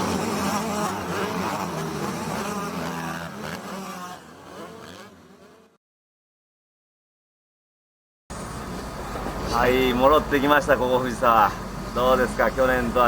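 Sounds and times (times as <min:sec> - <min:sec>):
motocross bike engines revving: 0:00.0 - 0:05.8, 0:08.4 - 0:13.0.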